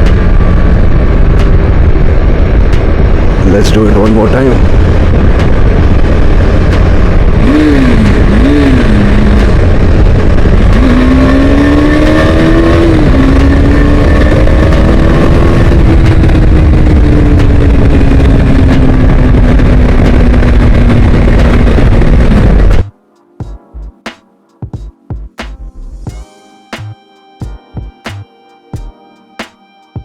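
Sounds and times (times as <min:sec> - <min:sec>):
motorcycle engine revving: 0:00.0 - 0:22.9
wind noise: 0:00.0 - 0:22.9.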